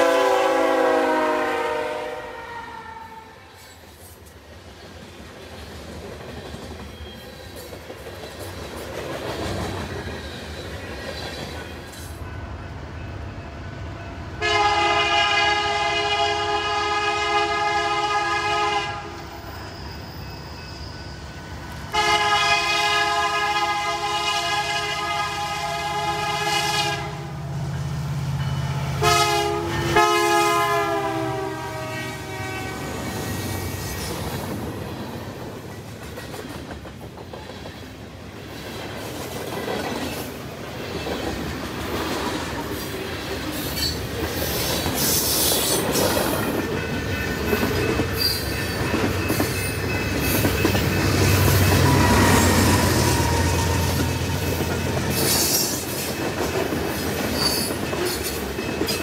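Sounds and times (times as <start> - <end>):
train horn: 0.0 - 3.7, 14.4 - 19.4, 21.9 - 27.5, 28.6 - 33.4, 51.3 - 54.6
train rumbling past: 0.0 - 59.0
faint wheel squeal: 19.3 - 21.6.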